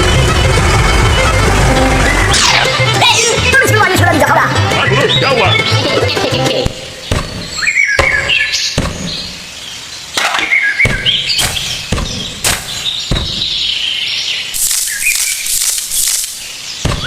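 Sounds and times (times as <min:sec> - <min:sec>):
small birds chirping: 0:04.6 - 0:17.0
sharp knocks: 0:07.0 - 0:09.4, 0:10.2 - 0:13.7.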